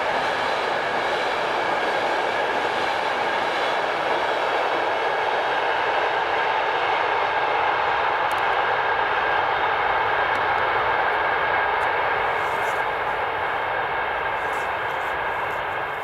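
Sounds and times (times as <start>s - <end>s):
train wheel-on-rail noise: 0.0s - 16.0s
faint steady tones: 8.2s - 16.0s.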